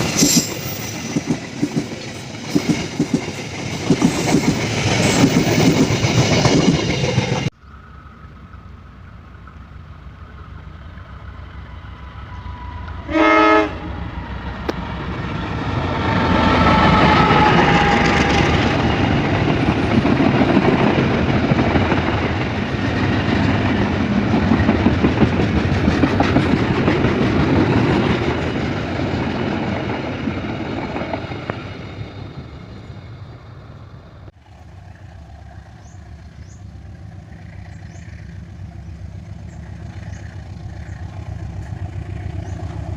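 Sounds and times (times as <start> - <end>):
train wheels clattering on rails: 0.0 - 7.5, 14.6 - 32.8
train horn blast: 12.6 - 14.1.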